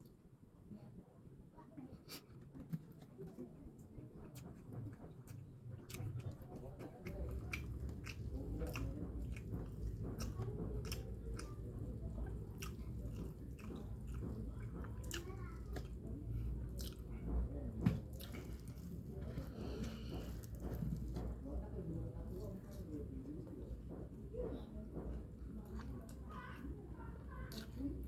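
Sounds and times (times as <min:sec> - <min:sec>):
person chewing food: 0:04.3 - 0:21.4.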